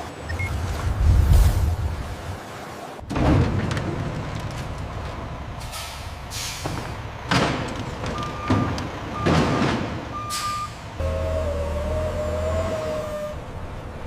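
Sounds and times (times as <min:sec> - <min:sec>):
factory machinery running: 0:03.0 - 0:14.0.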